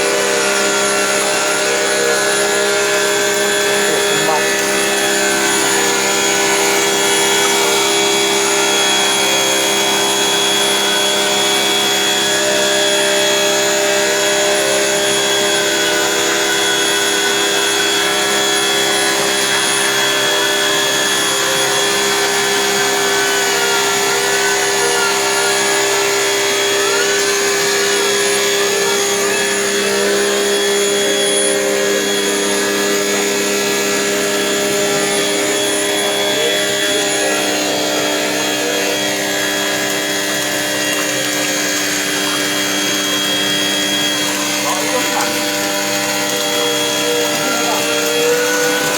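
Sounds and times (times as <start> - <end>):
machine motor running: 0.0 - 48.9.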